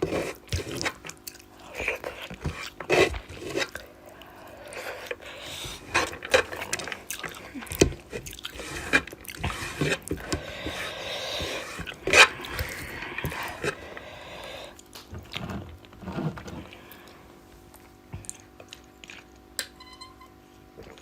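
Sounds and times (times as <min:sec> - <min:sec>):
chewing and mouth noises: 0:00.4 - 0:05.2, 0:05.8 - 0:10.4, 0:17.0 - 0:19.6.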